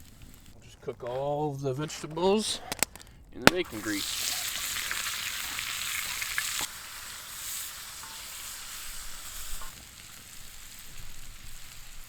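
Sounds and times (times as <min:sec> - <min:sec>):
vegetables sizzling in grease: 0:03.5 - 0:12.0.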